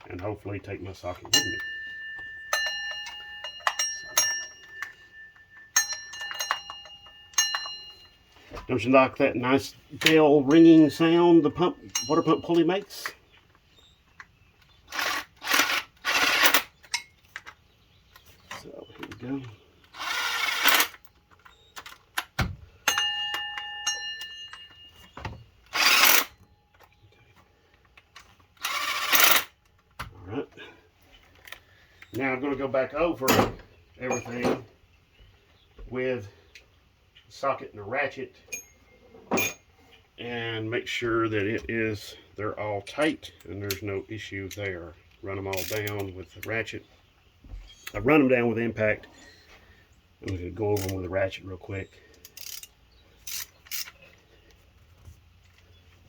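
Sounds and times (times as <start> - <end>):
metal pulley clanging when struck: 1.2 - 8.0, 10.5 - 12.7, 38.5 - 39.6
impact wrench bursts: 14.8 - 16.8, 19.9 - 21.0, 25.7 - 26.4, 28.6 - 29.6, 52.2 - 54.0.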